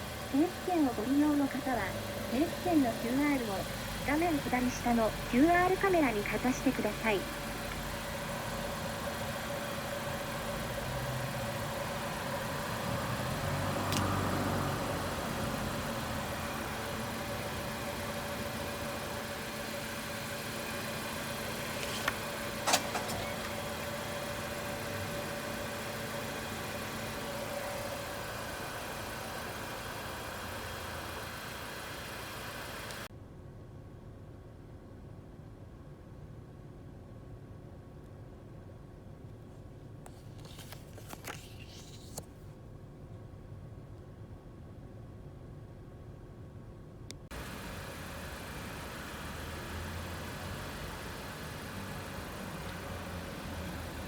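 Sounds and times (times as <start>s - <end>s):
car engine idling: 0.0s - 33.1s, 47.2s - 54.0s
sharp clicks: 13.9s - 14.2s.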